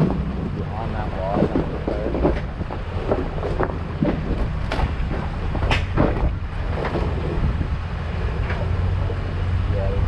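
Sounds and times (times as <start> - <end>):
sharp knocks or crunches: 0.0 - 7.2
truck engine rumbling: 0.0 - 10.0
wind on microphone: 0.0 - 10.0.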